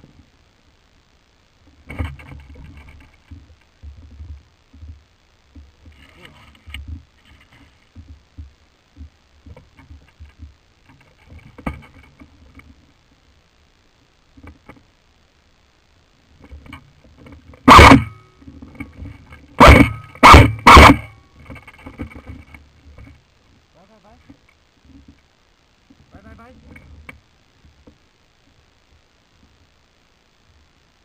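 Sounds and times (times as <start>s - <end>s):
faint rustling and small knocks: 0.0s - 31.0s
loud scraping bursts: 19.0s - 22.4s.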